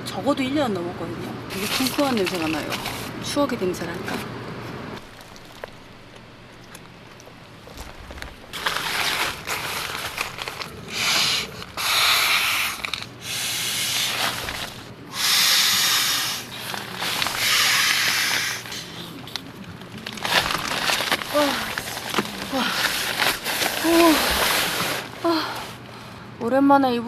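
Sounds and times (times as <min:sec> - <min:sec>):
breaths blown into mattress valve: 0:10.9 - 0:19.0.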